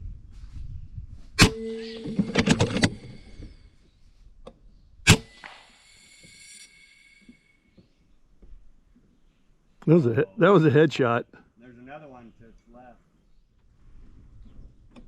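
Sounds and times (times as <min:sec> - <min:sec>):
air rifle shots: 0:01.4 - 0:03.0, 0:05.1 - 0:06.1.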